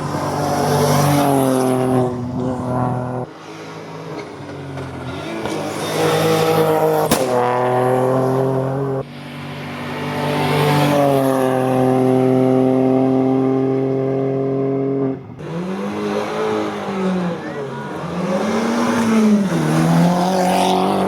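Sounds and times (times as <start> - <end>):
racing car engines at full throttle: 0.0 - 21.0
sharp crack: 7.1 - 7.7.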